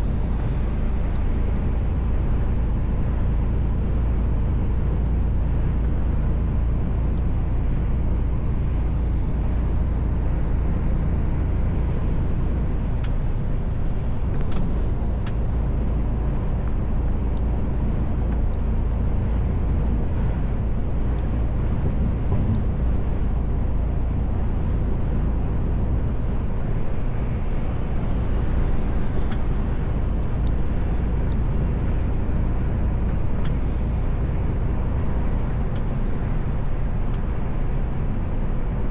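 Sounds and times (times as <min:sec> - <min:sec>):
truck engine and road drone: 0:00.0 - 0:38.9.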